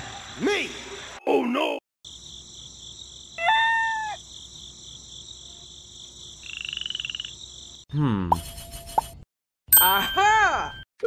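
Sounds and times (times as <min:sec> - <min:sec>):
insect-like chirring: 0:02.1 - 0:07.8
pitched animal call: 0:03.4 - 0:04.2.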